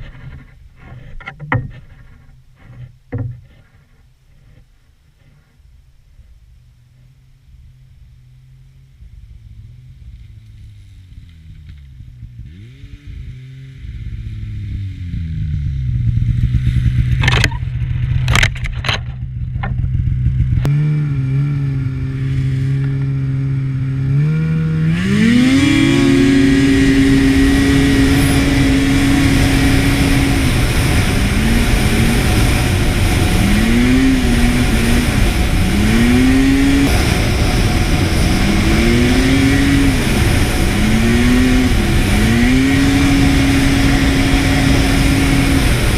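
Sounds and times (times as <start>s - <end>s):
snowmobile engine revving: 7.4s - 45.9s.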